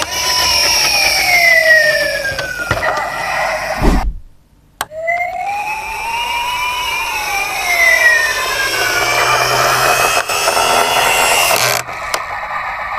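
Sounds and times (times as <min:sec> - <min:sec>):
toy siren wailing: 0:00.0 - 0:03.8, 0:04.9 - 0:12.3
buzzing engine-like noise: 0:05.5 - 0:12.9.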